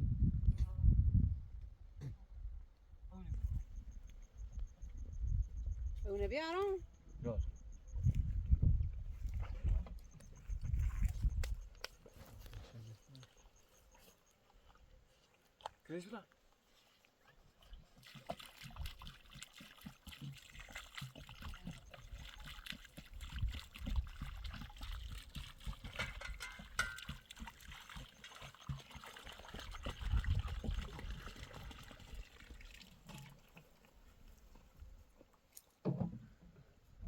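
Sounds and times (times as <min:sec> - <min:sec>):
water trickling: 0:17.6 - 0:35.3.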